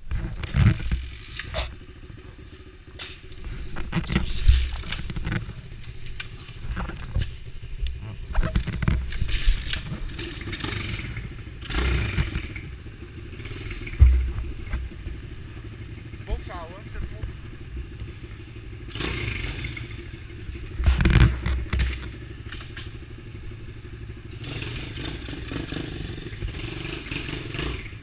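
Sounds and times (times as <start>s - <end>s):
knocks scrapes and rattles: 0.0s - 1.8s, 3.0s - 7.5s, 8.1s - 12.6s, 20.8s - 22.7s
pit bike engine running: 0.0s - 28.0s.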